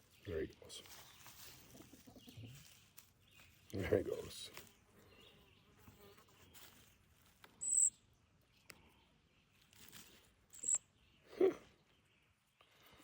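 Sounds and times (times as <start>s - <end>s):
fledgling bird peeping: 7.6s - 9.7s, 10.5s - 12.9s.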